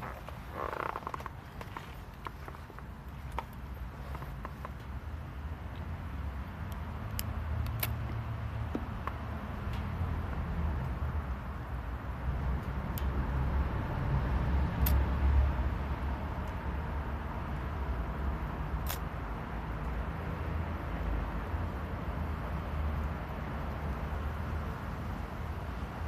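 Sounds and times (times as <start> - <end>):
wood crackling and popping: 0.0 - 5.1
fire low rumble: 0.0 - 26.0.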